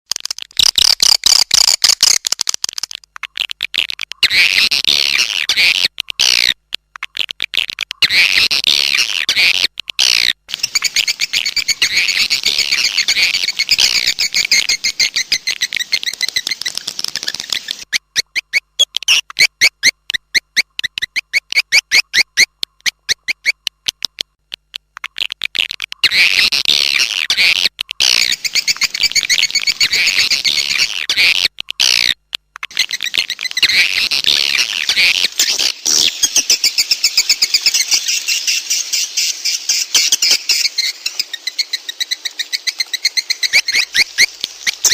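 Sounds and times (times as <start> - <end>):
swiftlets twittering chirps: 10.5 - 22.5, 26.8 - 31.4, 32.6 - 44.9.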